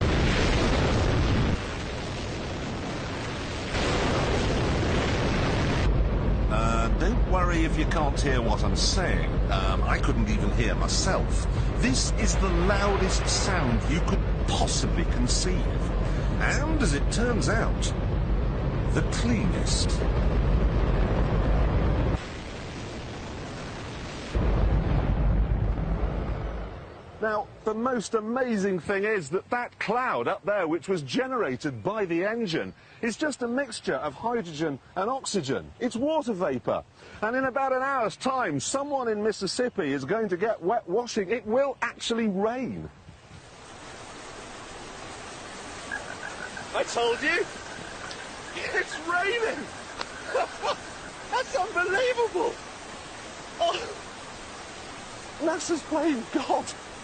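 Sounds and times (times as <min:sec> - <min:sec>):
rocket engine roaring: 0:00.0 - 0:27.2.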